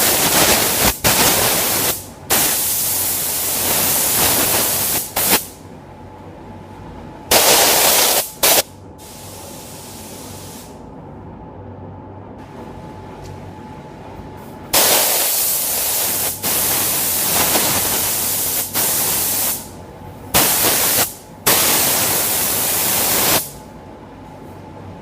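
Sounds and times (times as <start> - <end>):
spray gun hissing bursts: 0.0 - 5.5, 7.3 - 10.7, 14.8 - 19.7, 20.4 - 23.6
steady low hum: 0.0 - 25.0.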